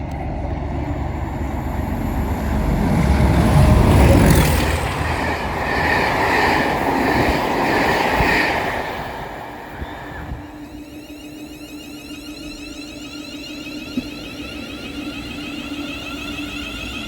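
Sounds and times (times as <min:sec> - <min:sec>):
diesel locomotive engine rumble: 0:00.0 - 0:13.2.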